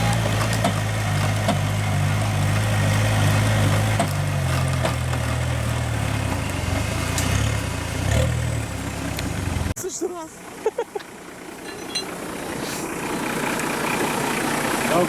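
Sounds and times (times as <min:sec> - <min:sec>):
engine running at low revs: 0:00.0 - 0:09.8.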